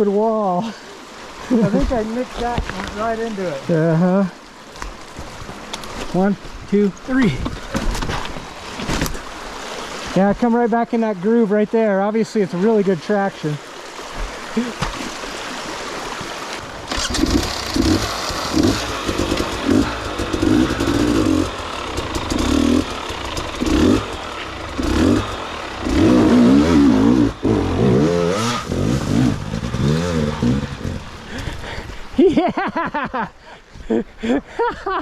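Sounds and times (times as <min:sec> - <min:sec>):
dirt bike engine revving: 0:16.6 - 0:31.5.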